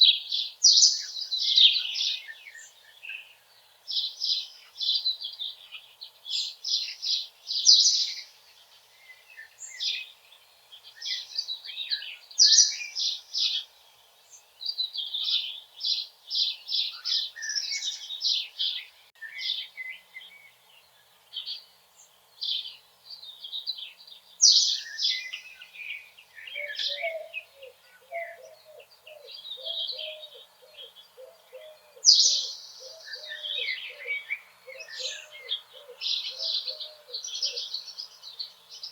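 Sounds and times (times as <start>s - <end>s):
songbirds chorus: 0.0s - 38.9s
low repeated bird call: 24.4s - 38.9s.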